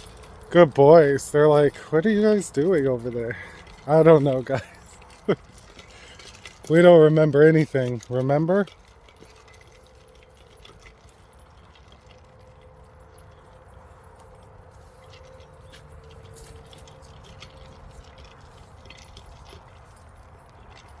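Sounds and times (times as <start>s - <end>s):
dog tags jingling: 0.0s - 21.0s.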